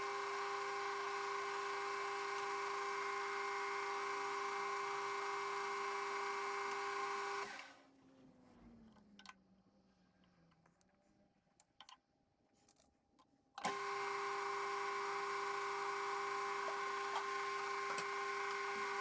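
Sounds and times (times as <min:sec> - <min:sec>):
machine tool motor whine: 0:00.0 - 0:07.8, 0:13.6 - 0:19.0.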